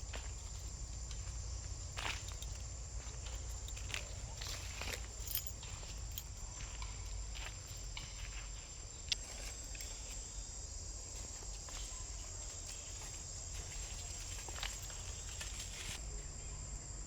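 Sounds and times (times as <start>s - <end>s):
high-pitched insect trill: 0.0s - 17.0s.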